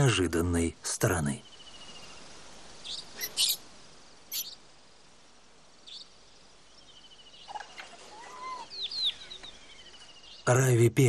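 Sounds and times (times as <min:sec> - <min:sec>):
bird calls: 0:01.4 - 0:04.7, 0:05.8 - 0:10.7
pulsed insect trill: 0:01.4 - 0:05.0
birds chirping and whistling: 0:02.8 - 0:03.6, 0:04.3 - 0:04.6, 0:06.8 - 0:10.5.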